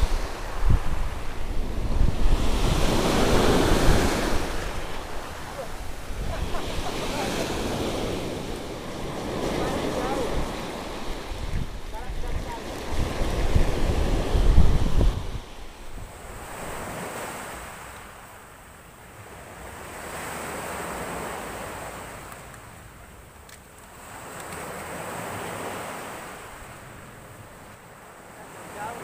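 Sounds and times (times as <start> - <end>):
wind buffeting microphone: 0.0 - 18.0
waves breaking on shore: 0.0 - 29.0.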